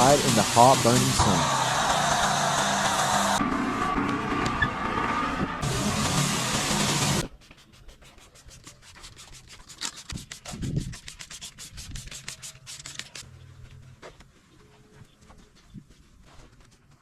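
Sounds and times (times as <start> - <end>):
loud rushing noise: 0.0 - 7.3
scrubbing on a surface: 7.2 - 13.2.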